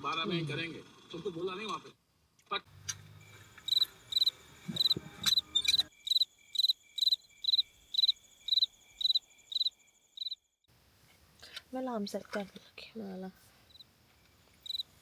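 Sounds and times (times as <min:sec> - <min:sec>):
cricket chirping: 0:02.7 - 0:10.7, 0:13.4 - 0:15.0.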